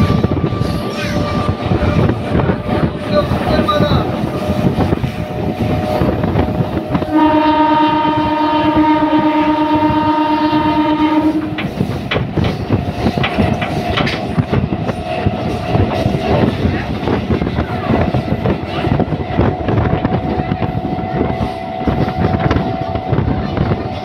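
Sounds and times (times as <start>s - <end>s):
train horn blast: 0.0s - 3.0s, 4.3s - 11.8s
train wheels clickety-clack: 0.0s - 8.2s, 8.8s - 24.0s.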